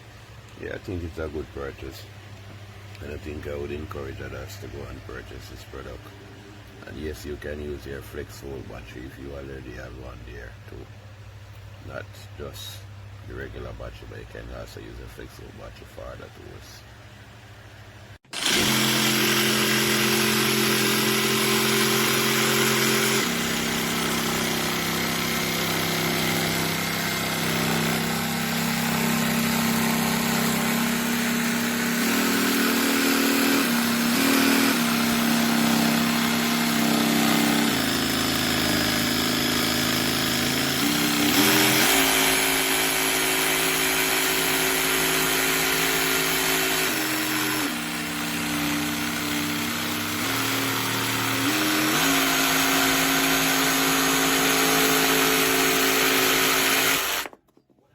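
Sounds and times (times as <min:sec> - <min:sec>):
jig saw motor humming: 0:18.2 - 0:57.4.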